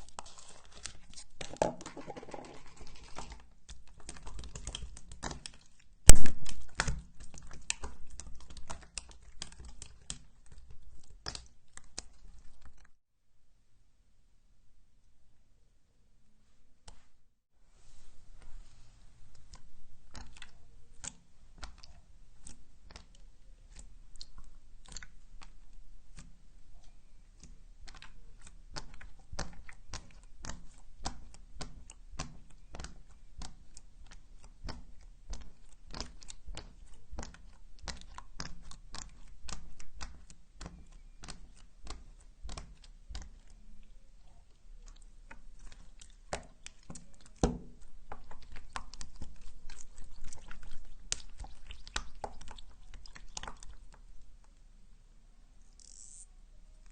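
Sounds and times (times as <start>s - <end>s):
slime squishing sticky clicks: 3.9s - 12.2s.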